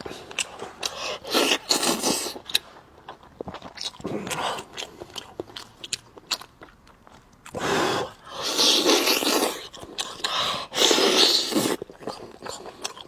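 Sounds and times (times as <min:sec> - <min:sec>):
loud slurping while eating: 0:00.9 - 0:02.5, 0:07.5 - 0:12.4.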